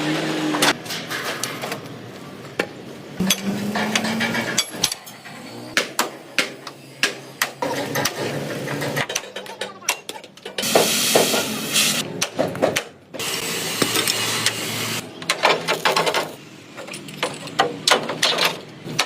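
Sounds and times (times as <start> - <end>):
hammer striking metal: 3.2 - 5.1.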